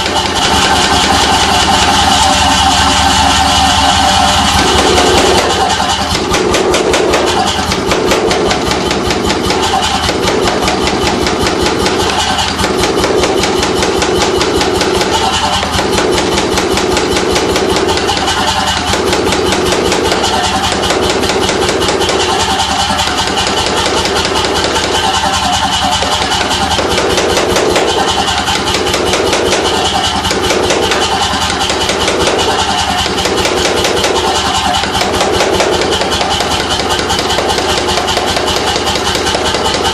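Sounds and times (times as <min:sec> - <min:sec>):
air hammer strokes: 0:00.0 - 0:39.9.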